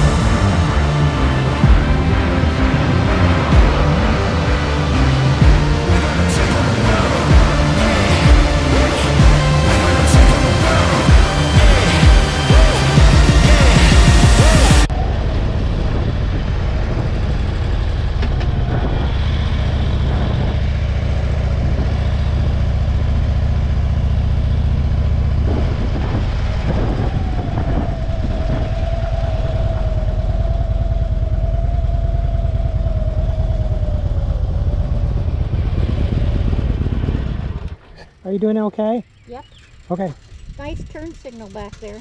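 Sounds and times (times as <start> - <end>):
motorcycle engine running: 0.0 - 14.9, 38.9 - 42.0
music track: 0.0 - 14.9.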